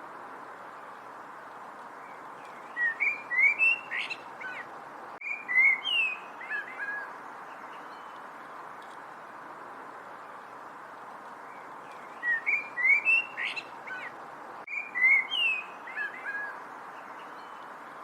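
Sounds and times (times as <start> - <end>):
steady background hiss: 0.0 - 18.0
songbird chirping and whistling: 2.4 - 4.6, 5.2 - 7.1, 11.9 - 14.1, 14.7 - 16.6
faint click: 8.1 - 9.0.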